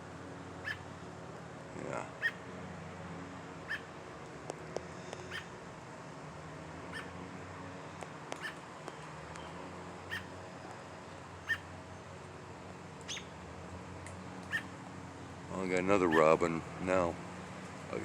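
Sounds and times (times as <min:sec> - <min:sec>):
robin chirping: 0:00.6 - 0:00.8, 0:02.2 - 0:02.4, 0:03.6 - 0:03.9, 0:05.2 - 0:05.5, 0:06.9 - 0:07.2, 0:08.4 - 0:08.6, 0:10.1 - 0:10.3, 0:11.4 - 0:11.7, 0:13.0 - 0:13.3, 0:14.5 - 0:14.8, 0:16.0 - 0:16.4.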